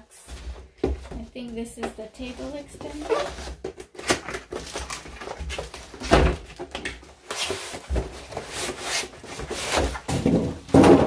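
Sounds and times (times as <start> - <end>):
cardboard box rustling and scraping: 7.3 - 10.4.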